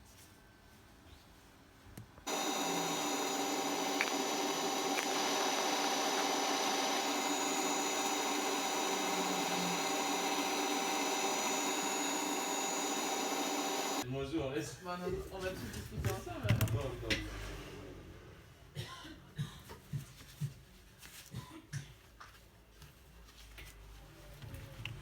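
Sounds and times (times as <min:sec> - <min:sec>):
electric machine hum: 0:02.3 - 0:14.0
high whine: 0:02.3 - 0:14.0.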